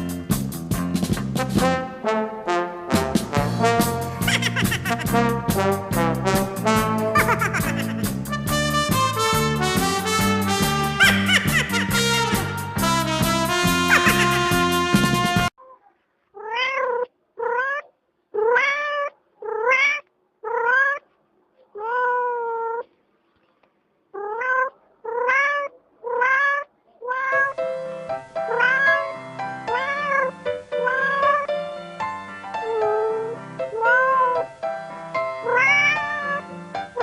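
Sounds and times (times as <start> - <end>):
piano music: 0.0 - 15.5, 27.3 - 37.0
cat meowing: 15.6 - 21.1, 21.7 - 22.9, 24.2 - 27.6, 28.5 - 29.1, 29.7 - 31.5, 32.6 - 34.5, 35.4 - 37.0.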